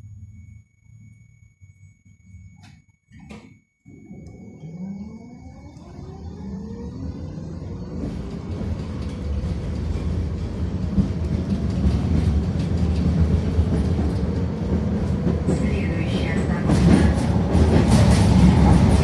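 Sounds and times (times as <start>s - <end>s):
wheels rumbling on rails: 4.4s - 19.0s.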